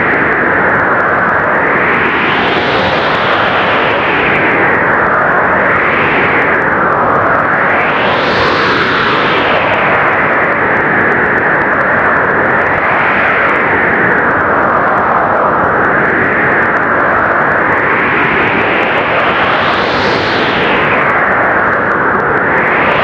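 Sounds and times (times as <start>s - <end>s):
blizzard wind blowing hard: 0.0s - 23.0s.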